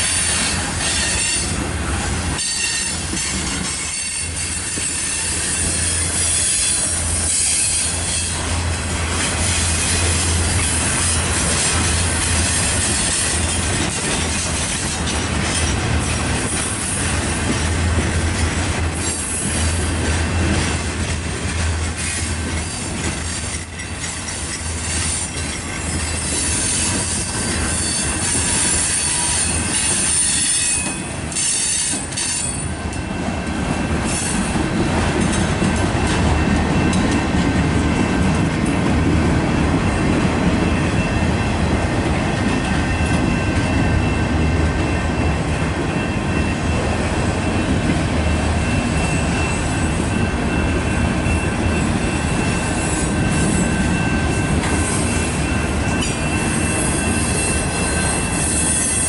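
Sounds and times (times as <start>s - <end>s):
steel wheels rumbling on rails: 0.0s - 59.0s
thin wheel squeal: 3.8s - 8.4s.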